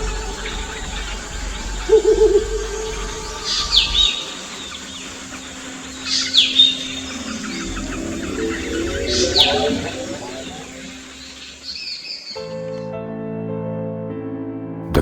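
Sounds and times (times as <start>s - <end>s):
owl low hoot: 0.0s - 11.4s
owl shrill downward calls: 0.0s - 12.4s.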